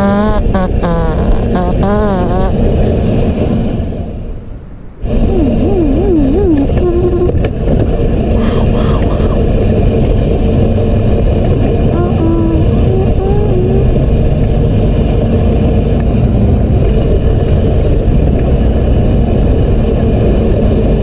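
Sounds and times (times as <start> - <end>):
dirt bike engine rumbling: 0.0 - 21.0
person speaking: 5.1 - 7.4, 12.0 - 13.9.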